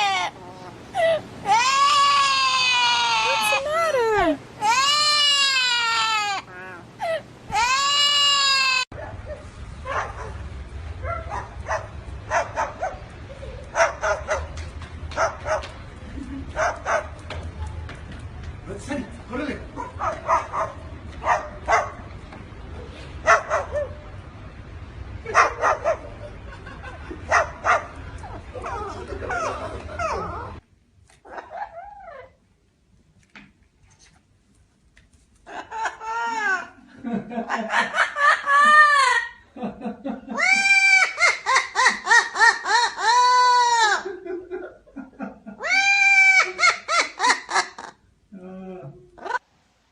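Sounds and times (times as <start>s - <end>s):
dog yapping barks: 19.8s - 22.0s.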